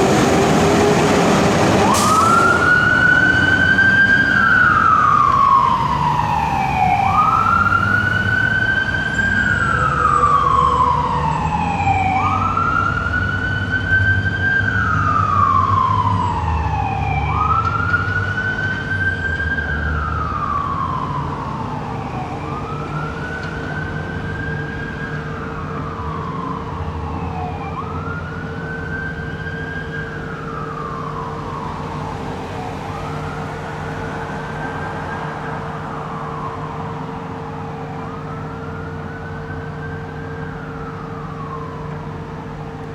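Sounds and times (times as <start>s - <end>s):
siren wailing: 0.0s - 42.9s.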